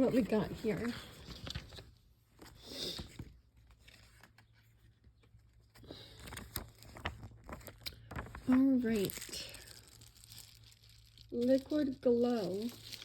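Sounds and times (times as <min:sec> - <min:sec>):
packaging rustling: 0:05.8 - 0:13.0.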